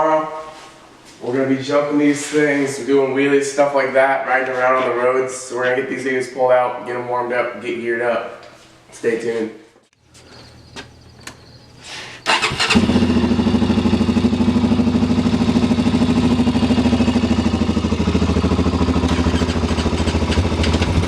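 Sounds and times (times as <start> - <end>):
small engine starting and idling: 12.2 - 21.0.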